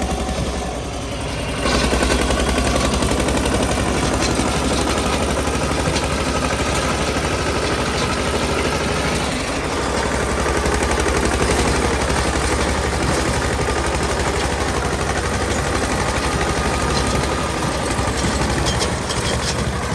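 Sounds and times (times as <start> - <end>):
tractor diesel engine chugging: 0.0 - 19.9.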